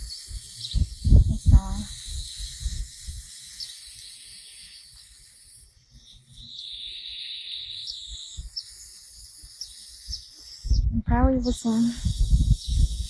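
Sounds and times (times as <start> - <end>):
garden hose spraying water: 0.0 - 13.0
high insect drone: 0.0 - 13.0.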